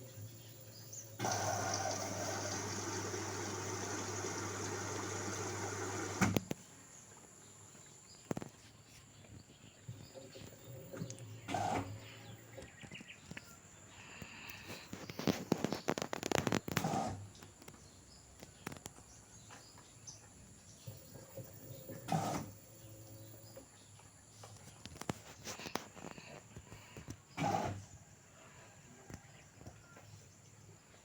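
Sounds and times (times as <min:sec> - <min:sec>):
water inlet valve hissing: 0:01.2 - 0:06.4.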